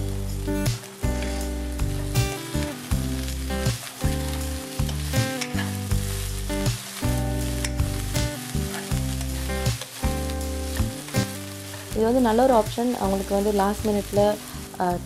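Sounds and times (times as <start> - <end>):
background music with held notes: 0.0 - 15.0
vegetables sizzling in oil: 0.0 - 15.0
spatula stirring and scraping: 3.2 - 14.8.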